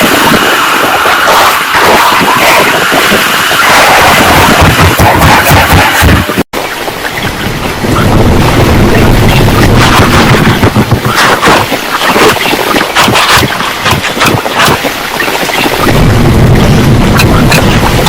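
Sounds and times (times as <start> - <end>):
gusting wind: 0.0 - 18.0
heavy rain: 0.0 - 18.0
low rumble: 7.2 - 11.6, 15.7 - 18.0.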